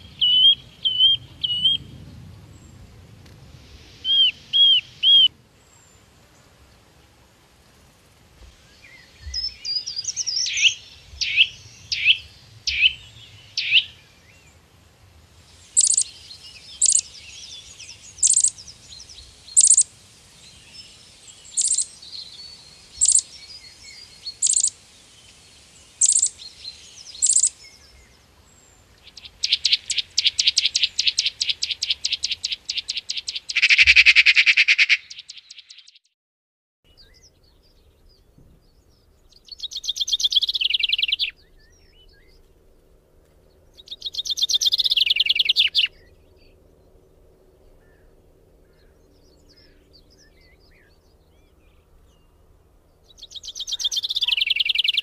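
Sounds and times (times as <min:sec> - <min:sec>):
loud single bird chirps: 0:00.0 - 0:01.9, 0:04.0 - 0:05.3, 0:08.9 - 0:14.0, 0:15.8 - 0:18.6, 0:21.5 - 0:21.9, 0:23.0 - 0:23.4, 0:26.0 - 0:26.4, 0:27.1 - 0:27.7, 0:29.1 - 0:36.0, 0:53.1 - 0:55.0
fast bird trill: 0:04.0 - 0:05.3, 0:13.6 - 0:13.9, 0:15.8 - 0:16.2, 0:16.8 - 0:17.2, 0:18.2 - 0:18.6, 0:19.6 - 0:19.8, 0:21.5 - 0:21.9, 0:23.0 - 0:23.4, 0:24.3 - 0:24.7, 0:26.0 - 0:26.4, 0:27.2 - 0:27.6, 0:29.1 - 0:36.0, 0:43.8 - 0:45.9, 0:53.2 - 0:55.0
sharp bird chirps: 0:04.0 - 0:05.3, 0:08.8 - 0:14.0, 0:15.7 - 0:19.9, 0:20.8 - 0:24.8, 0:26.0 - 0:27.9, 0:29.0 - 0:36.1, 0:39.3 - 0:42.3, 0:43.8 - 0:46.1, 0:53.1 - 0:55.0.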